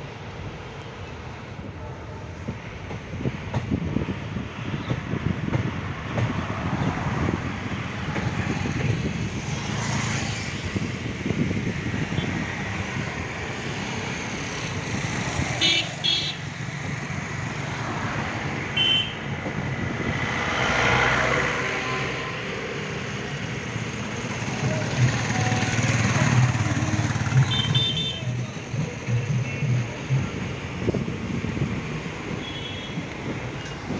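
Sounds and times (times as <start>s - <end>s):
road traffic rumble: 0.0s - 33.9s
car horn beeps: 15.6s - 16.5s, 18.8s - 19.2s, 27.4s - 28.4s, 32.3s - 33.1s.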